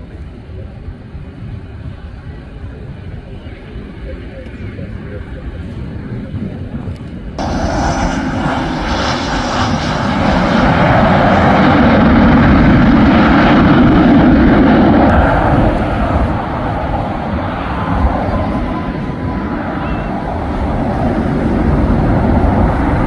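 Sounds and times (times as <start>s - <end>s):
airplane passing: 7.4s - 23.0s.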